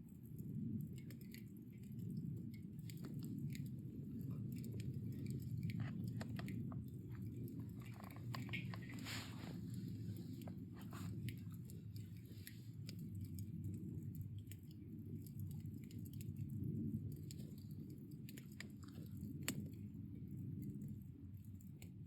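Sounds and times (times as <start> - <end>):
campfire burning rumble: 0.0 - 22.0
fire crackles and pops: 0.2 - 22.0.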